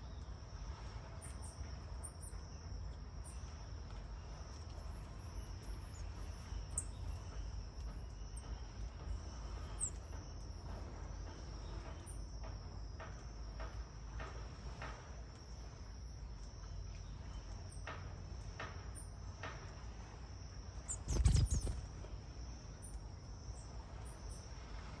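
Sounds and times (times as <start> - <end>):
insects chirring: 0.0 - 25.0
faint high chirps: 20.8 - 21.9.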